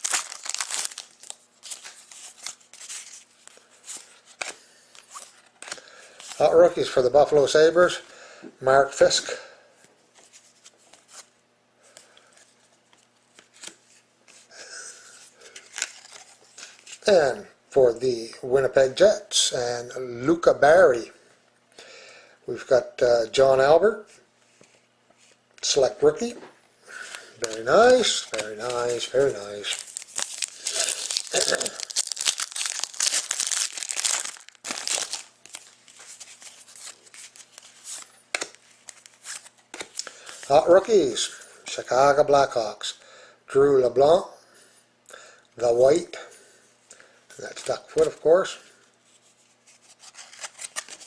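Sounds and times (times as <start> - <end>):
wrapper crinkling and tearing: 0.0 - 6.5, 15.6 - 17.0, 27.4 - 40.5, 50.0 - 51.0
trading cards rustling: 0.0 - 6.8, 15.4 - 17.0, 27.0 - 40.9, 49.7 - 51.0.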